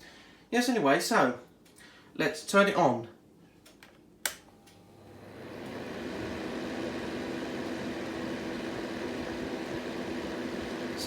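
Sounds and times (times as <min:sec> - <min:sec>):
sharp switch click: 0:04.2 - 0:04.5
fan heater running: 0:04.3 - 0:11.0.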